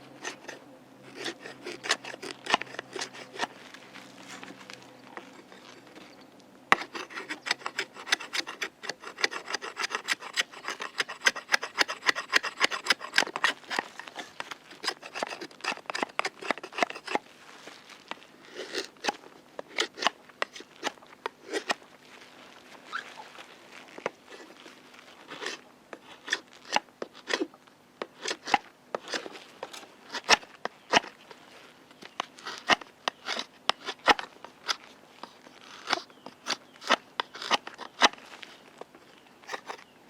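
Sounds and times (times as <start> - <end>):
hand tool rasping on wood: 0.1 - 3.5, 6.7 - 17.2, 18.5 - 21.8, 25.3 - 31.1, 35.7 - 38.2, 39.5 - 39.8.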